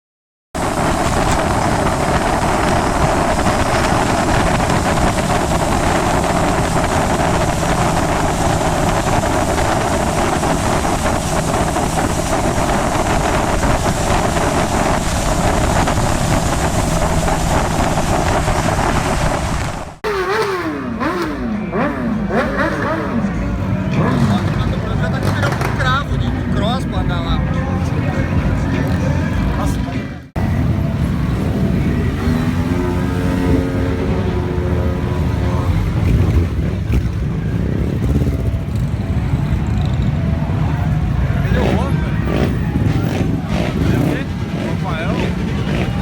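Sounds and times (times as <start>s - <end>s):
wind rushing on microphone: 0.6s - 20.0s
motorcycle engine revving: 0.6s - 27.3s, 30.4s - 46.0s.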